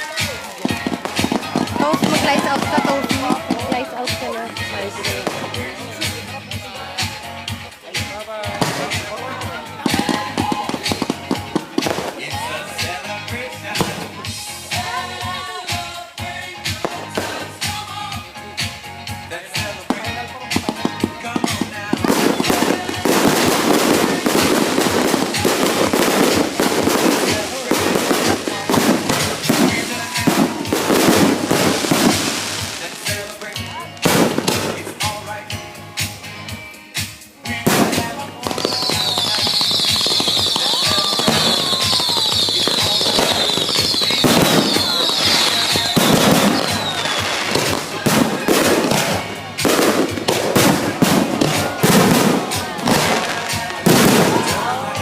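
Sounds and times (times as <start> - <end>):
fireworks bangs: 0.0 - 15.9, 16.6 - 18.8, 19.4 - 36.6, 37.5 - 55.0
fireworks crackling: 0.0 - 55.0
high falling whistles: 38.6 - 47.2.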